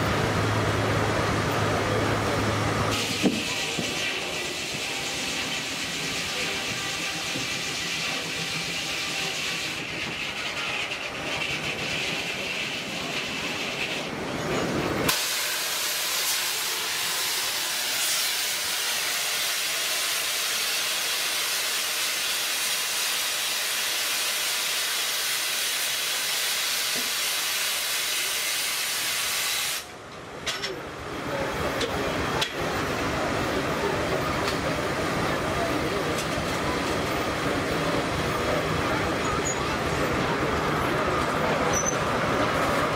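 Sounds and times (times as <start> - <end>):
steam engine hissing steam: 2.0 - 30.0.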